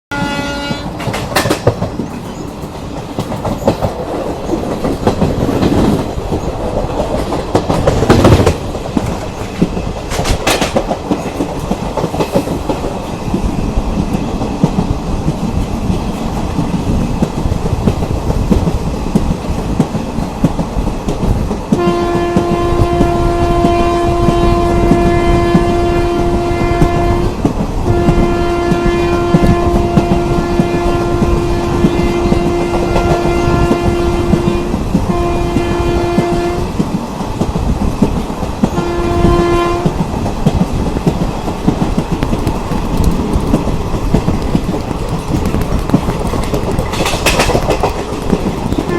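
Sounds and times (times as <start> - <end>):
train horn blast: 0.1 - 1.0, 21.7 - 36.8, 38.7 - 40.0
train wheels clattering over rail joints: 0.8 - 48.9.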